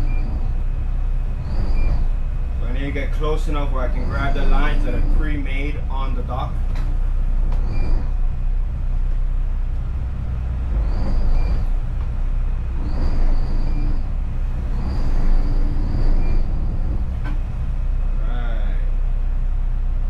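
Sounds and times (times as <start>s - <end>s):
high-pitched whines: 0.0s - 19.9s
boat engines rumbling: 0.0s - 20.0s.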